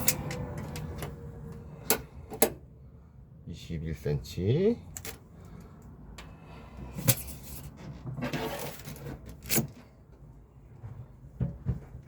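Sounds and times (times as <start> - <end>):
scraping rustle: 7.0 - 9.8.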